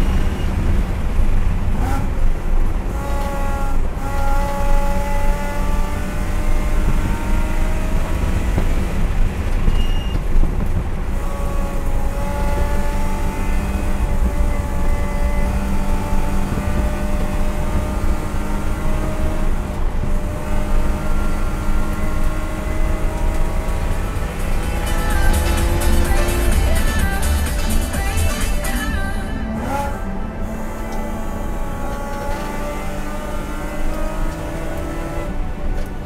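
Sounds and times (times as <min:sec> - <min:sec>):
race car engine revving: 0:00.0 - 0:09.7, 0:10.4 - 0:36.0
road and wind noise: 0:00.0 - 0:36.0.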